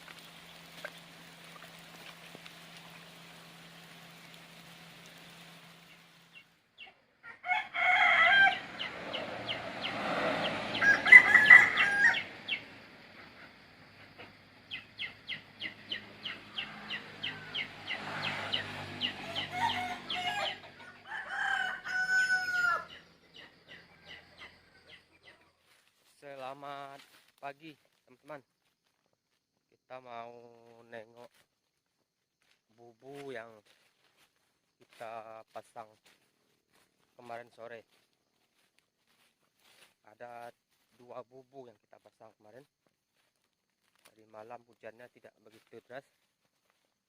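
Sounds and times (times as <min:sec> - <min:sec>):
roosters crowing: 0:07.2 - 0:25.4.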